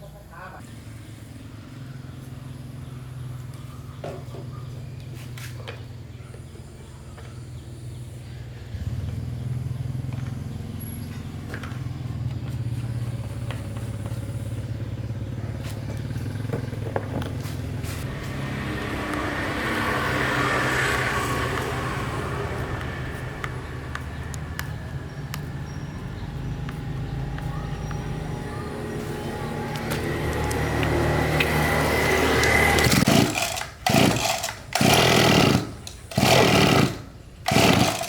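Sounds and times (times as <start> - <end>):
lawn mower engine running: 8.7 - 38.0.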